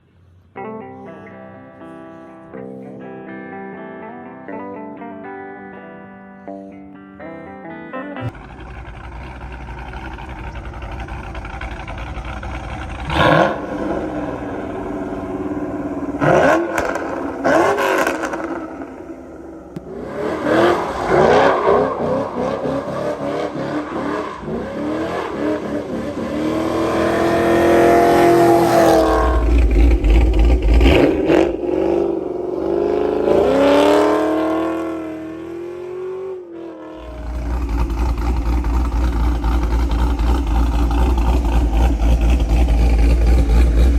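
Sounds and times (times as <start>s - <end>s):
deep engine rumble: 8.2s - 34.0s, 37.0s - 43.9s
engine revving and accelerating: 8.2s - 43.9s.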